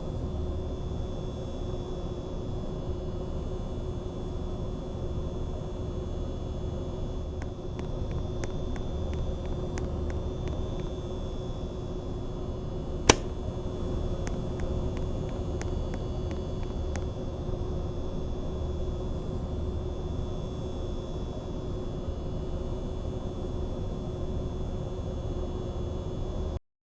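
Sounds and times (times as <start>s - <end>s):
sharp click: 13.1s - 13.4s.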